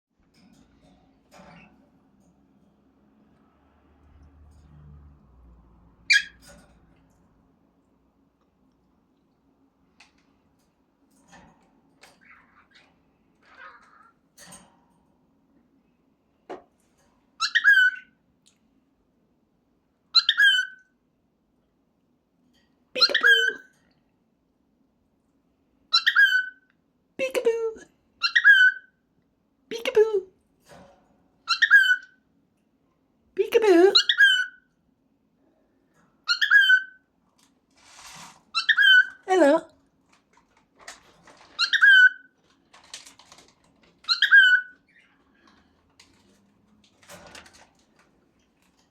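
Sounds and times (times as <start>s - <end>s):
faint clicks and rustling: 6.5s - 15.7s, 39.7s - 41.6s, 42.4s - 44.1s, 44.8s - 48.9s
cockatiel speech-like call: 13.4s - 14.1s, 23.0s - 23.7s, 33.5s - 34.6s
cockatiel high chirp: 31.5s - 32.2s, 36.3s - 37.0s, 41.6s - 42.3s.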